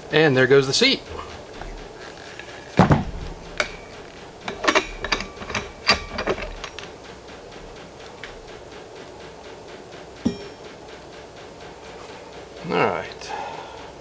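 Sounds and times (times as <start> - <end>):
sharp metallic clicks: 0.0 - 12.0
metal parts and tools clinking: 1.0 - 7.0
loud knock: 2.8 - 4.2.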